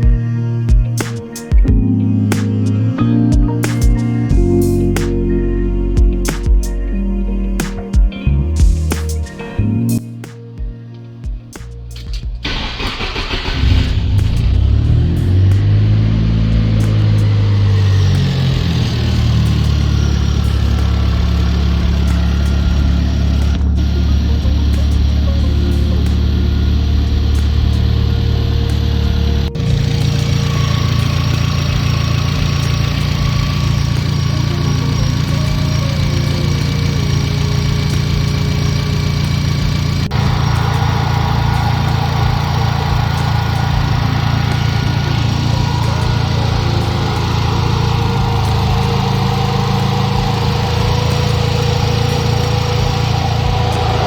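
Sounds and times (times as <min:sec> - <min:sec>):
car engine idling: 0:11.5 - 0:54.0.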